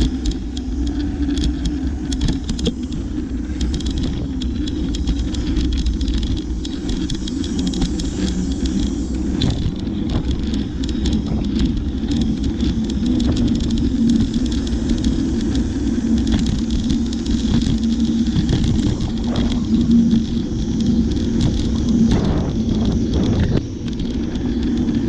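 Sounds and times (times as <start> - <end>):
bicycle clicks and rattles: 0.0 - 25.0
bicycle tyres rumbling on road: 0.0 - 25.0.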